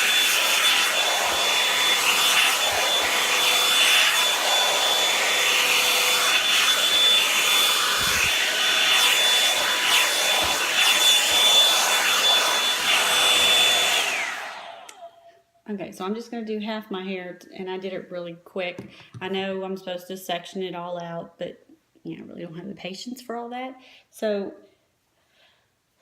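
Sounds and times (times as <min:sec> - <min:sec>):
hair dryer blowing: 0:00.0 - 0:15.3.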